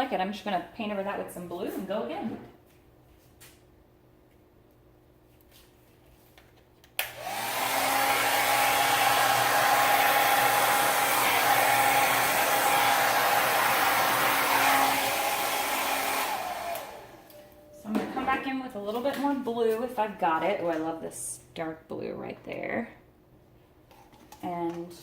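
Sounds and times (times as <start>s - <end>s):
hair dryer running: 7.0s - 17.6s.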